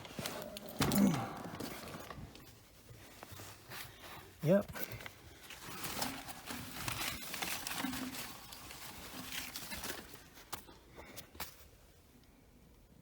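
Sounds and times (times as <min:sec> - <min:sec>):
scuffing and rustling: 0:00.0 - 0:10.7.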